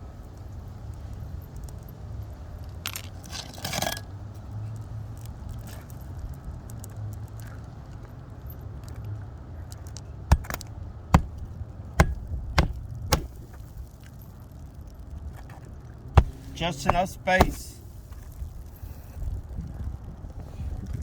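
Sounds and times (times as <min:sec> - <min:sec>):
hammer striking nail: 0:10.3 - 0:10.6, 0:11.2 - 0:11.4, 0:12.0 - 0:13.6, 0:16.2 - 0:17.8.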